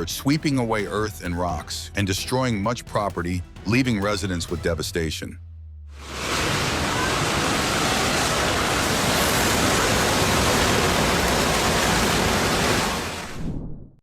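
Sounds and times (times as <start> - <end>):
landslide rushing: 6.0 - 13.7.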